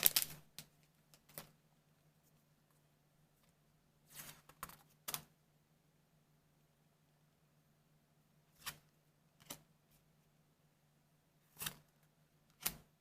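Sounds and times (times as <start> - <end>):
trading cards handled: 0.0 - 0.4
faint steady hum: 0.0 - 13.0.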